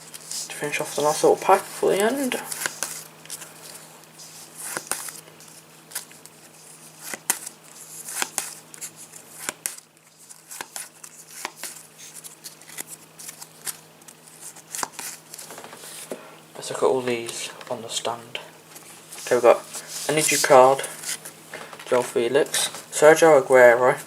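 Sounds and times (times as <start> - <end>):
cards rustling: 0.0 - 16.2, 18.8 - 22.8
cards tapping and clicking: 1.9 - 3.5, 4.7 - 5.2, 8.1 - 8.6, 9.4 - 9.8, 10.5 - 11.8, 12.6 - 15.6.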